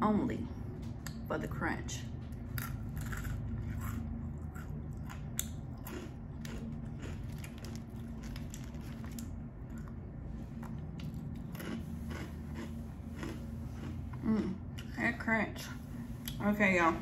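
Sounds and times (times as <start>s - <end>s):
steady low hum: 0.0s - 17.0s
crunchy snack chewing: 2.4s - 10.0s, 10.6s - 14.0s.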